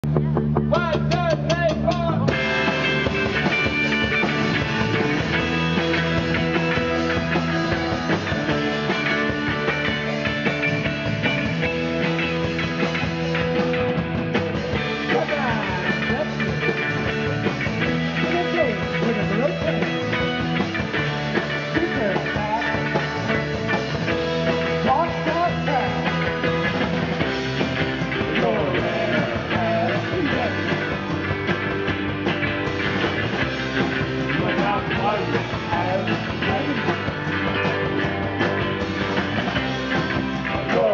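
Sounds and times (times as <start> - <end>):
rock band playing live: 0.0 - 40.9.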